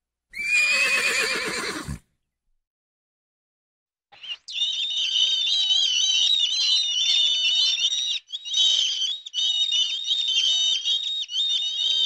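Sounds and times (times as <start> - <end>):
gulls calling: 4.2 - 12.0.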